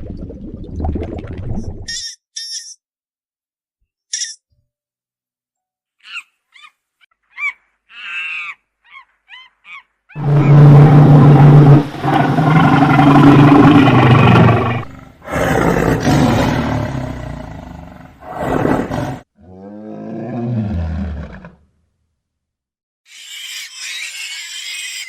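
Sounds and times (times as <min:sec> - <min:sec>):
lion roaring: 0:10.2 - 0:21.6.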